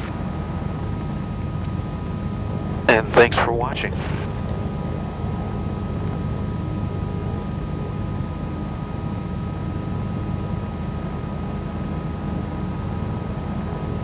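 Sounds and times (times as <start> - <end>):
piston aircraft engines rumbling: 0.0 - 7.9
faint high whine: 0.0 - 14.0.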